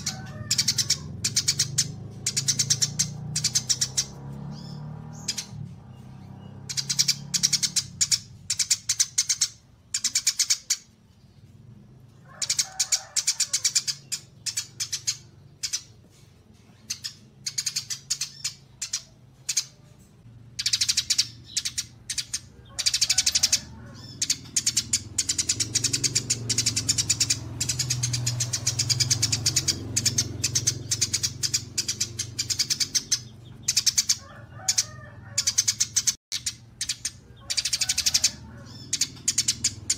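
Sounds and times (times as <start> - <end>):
songbird chattering trills: 0.0 - 11.5, 12.3 - 16.0, 16.6 - 39.9.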